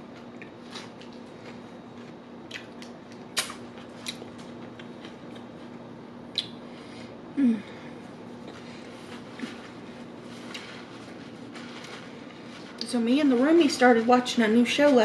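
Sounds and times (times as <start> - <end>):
steady low hum: 0.0 - 15.0
mouth chewing sandwich: 0.1 - 6.6
wet mouth clicks and smacks: 6.3 - 6.6.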